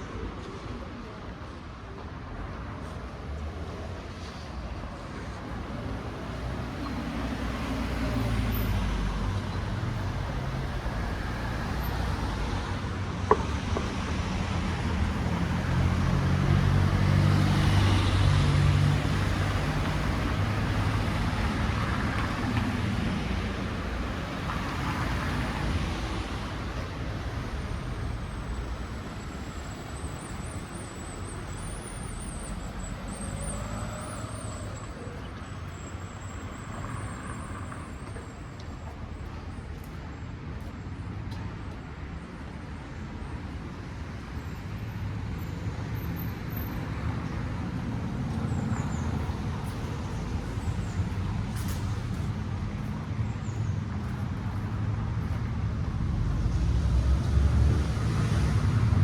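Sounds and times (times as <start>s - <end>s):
vehicles passing with engine rumble: 0.0s - 59.0s.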